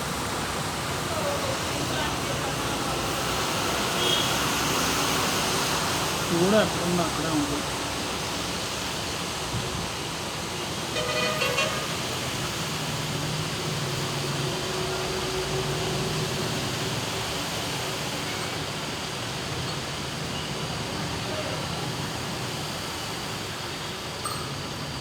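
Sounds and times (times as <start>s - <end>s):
heavy rain hiss: 0.0s - 25.0s
vehicle horn toot: 4.0s - 4.4s, 10.9s - 12.2s.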